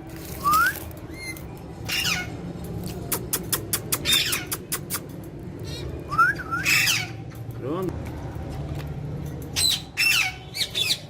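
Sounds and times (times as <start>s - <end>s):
parakeet squawking: 1.2s - 2.4s, 4.0s - 4.8s, 6.6s - 7.3s, 9.6s - 11.0s.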